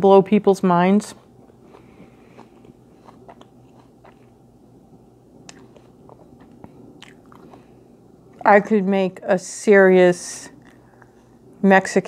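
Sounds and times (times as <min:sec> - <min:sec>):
faint chewing with mouth clicks: 0:01.0 - 0:04.6, 0:05.3 - 0:08.5, 0:10.5 - 0:11.5.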